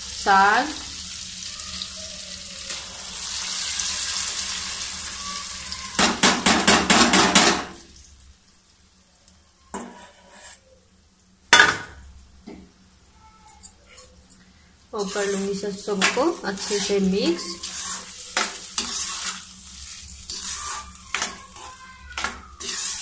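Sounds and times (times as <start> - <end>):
food sizzling in a pan: 0.0 - 10.6, 14.4 - 23.0
utensil knocking on pan: 6.0 - 7.7
steel bowl scraped: 9.8 - 10.6, 15.0 - 23.0.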